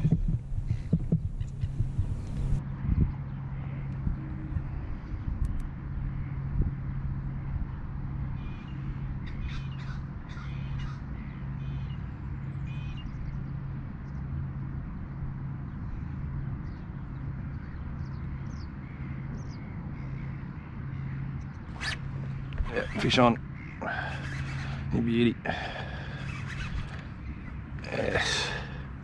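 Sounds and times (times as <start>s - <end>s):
steady low hum: 0.0s - 29.0s
harsh cawing bird calls: 3.5s - 4.8s, 8.4s - 13.3s, 17.6s - 29.0s.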